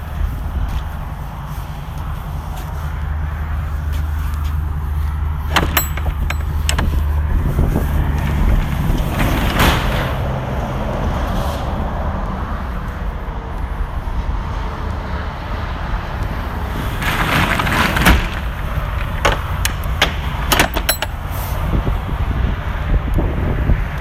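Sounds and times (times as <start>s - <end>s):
van engine idling: 0.0s - 10.5s, 18.2s - 22.8s
sharp clicks and knocks: 5.4s - 7.3s, 17.0s - 21.3s.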